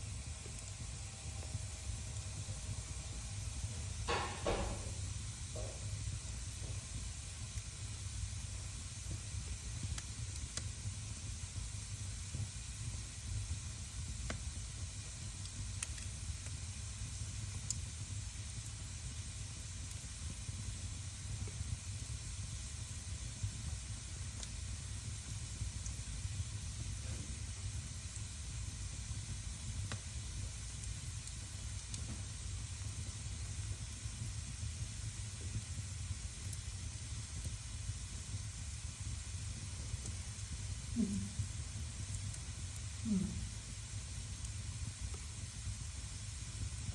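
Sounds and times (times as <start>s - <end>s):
fire crackles: 0.0s - 46.9s
fire hiss: 0.0s - 46.9s
wood fire rumbling: 0.0s - 46.9s.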